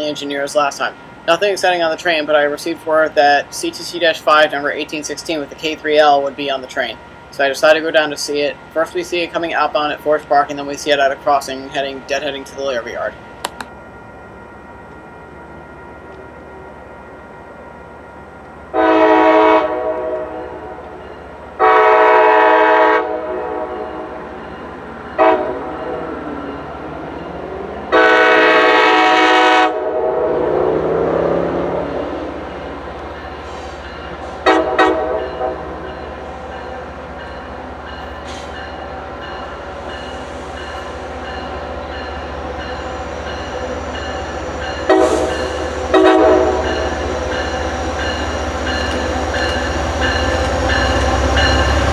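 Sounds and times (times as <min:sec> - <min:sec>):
train rumbling past: 0:00.0 - 0:51.9
train horn blasts: 0:18.7 - 0:20.8, 0:21.6 - 0:24.2, 0:25.2 - 0:26.0, 0:27.9 - 0:30.7, 0:34.4 - 0:35.8, 0:44.8 - 0:47.0.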